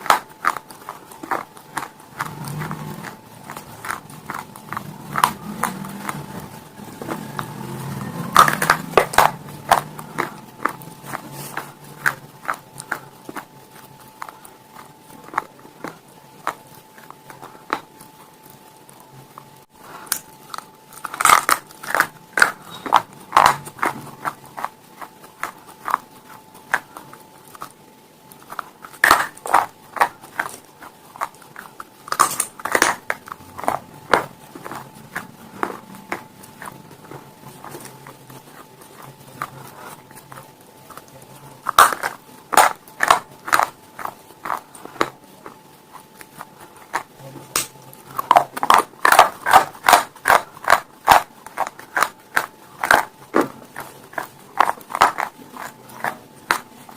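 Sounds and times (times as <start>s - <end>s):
crunching hard brittle food: 0.0s - 56.9s
soft chewing: 0.0s - 56.9s.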